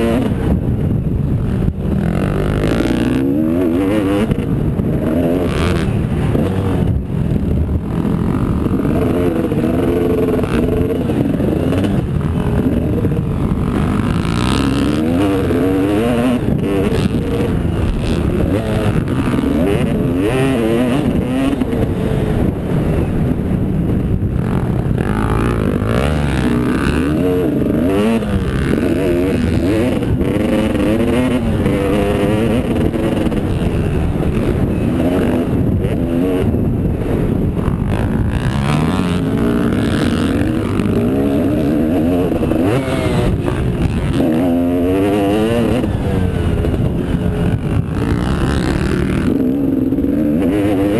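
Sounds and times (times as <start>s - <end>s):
motocross engines revving: 0.0s - 50.9s.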